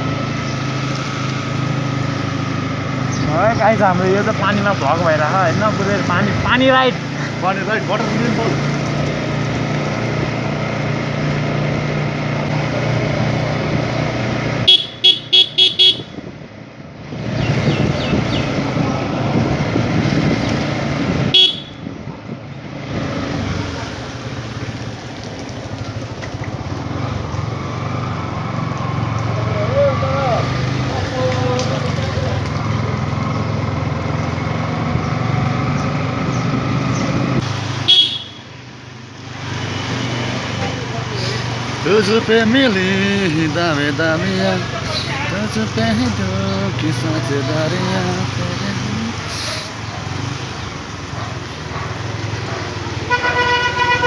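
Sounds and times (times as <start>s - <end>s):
motorcycle engine running: 0.0s - 54.0s
wind and road noise: 0.0s - 54.0s
vehicle horn tooting: 14.6s - 16.2s, 21.3s - 21.9s, 37.8s - 38.6s, 53.1s - 54.0s.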